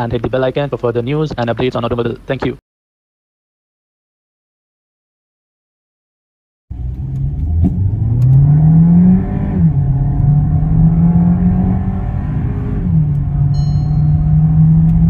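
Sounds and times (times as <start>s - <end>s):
car engine accelerating hard: 6.7s - 15.0s.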